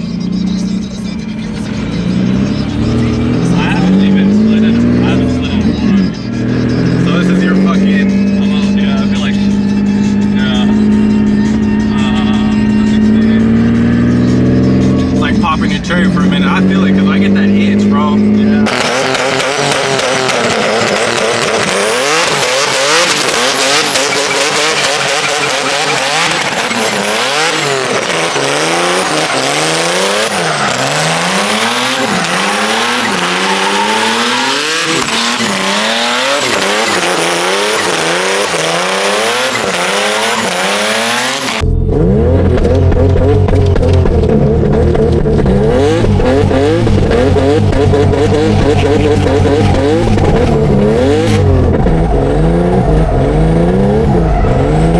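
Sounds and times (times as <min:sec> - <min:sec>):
car engine revving: 0:00.0 - 0:54.9
deep engine drone: 0:00.0 - 0:54.9
tyres squealing: 0:18.6 - 0:41.6, 0:43.2 - 0:54.9.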